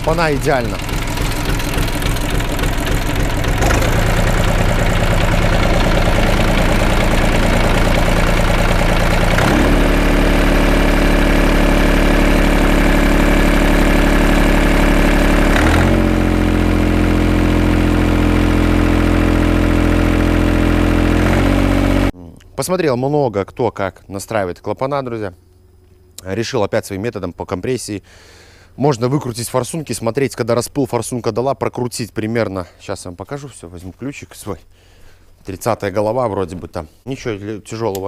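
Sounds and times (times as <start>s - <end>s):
small diesel engine running: 0.0s - 22.2s.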